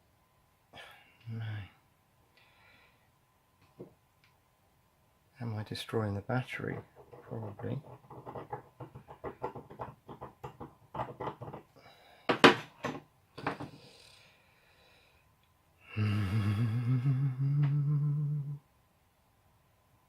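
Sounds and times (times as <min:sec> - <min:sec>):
scraping and clicking: 0:06.6 - 0:11.7
low hum rising in pitch: 0:16.1 - 0:18.6.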